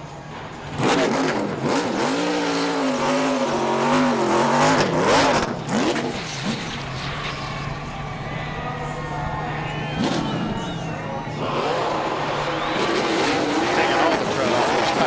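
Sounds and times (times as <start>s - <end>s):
engine revving hard: 0.7s - 7.0s, 9.9s - 15.0s.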